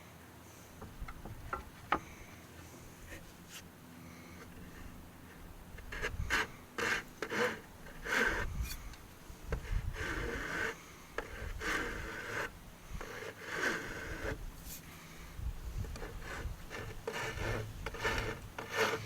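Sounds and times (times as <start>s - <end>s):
hand tool rubbing wood: 4.3s - 19.0s.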